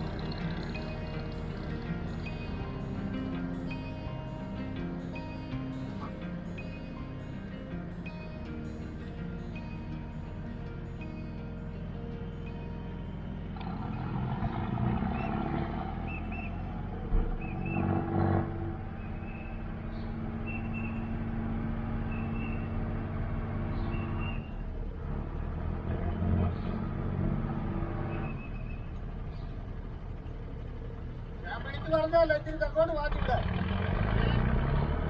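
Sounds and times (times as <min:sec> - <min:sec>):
motorboat engine humming: 0:00.0 - 0:35.0.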